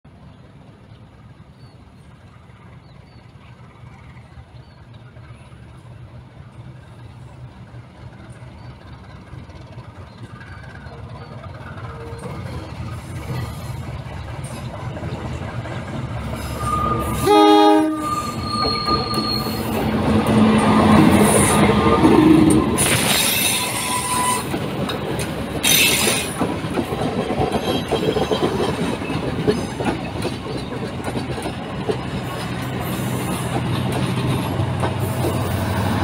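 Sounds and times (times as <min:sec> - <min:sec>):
train rolling over track: 0:00.1 - 0:36.0
rail ringing and clanking: 0:08.8 - 0:36.0
wheel squeal: 0:16.3 - 0:19.9, 0:20.7 - 0:24.6
train horn blast: 0:16.6 - 0:19.6.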